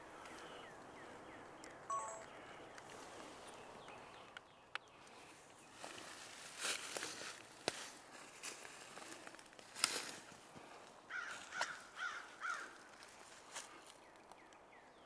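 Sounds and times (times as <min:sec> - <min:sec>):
outdoor birdsong: 0:00.0 - 0:07.4, 0:10.4 - 0:15.0.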